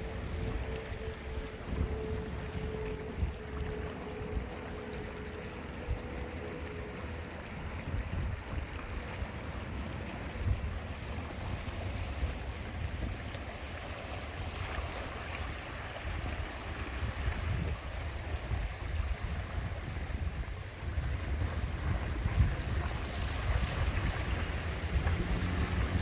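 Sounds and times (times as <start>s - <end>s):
sea waves washing: 0.0s - 26.0s
wind buffeting microphone: 7.1s - 26.0s.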